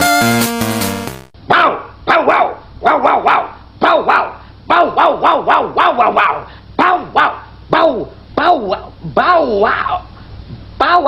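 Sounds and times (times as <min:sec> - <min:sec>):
dog barking: 0:01.5 - 0:08.0.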